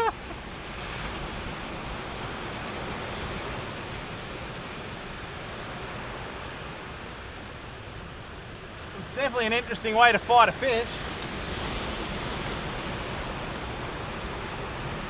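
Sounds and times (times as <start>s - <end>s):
surf washing up the beach: 0.0s - 15.0s.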